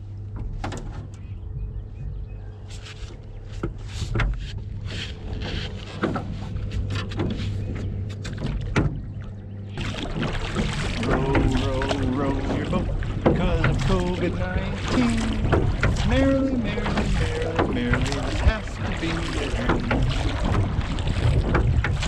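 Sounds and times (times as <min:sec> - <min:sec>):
wind rumbling on microphone: 0:00.0 - 0:22.0
clicks and knocks of fishing gear: 0:02.6 - 0:09.0.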